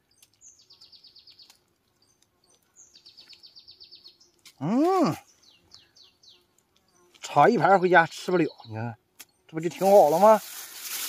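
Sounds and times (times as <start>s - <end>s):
songbird trilling: 2.8s - 4.4s, 5.0s - 10.6s.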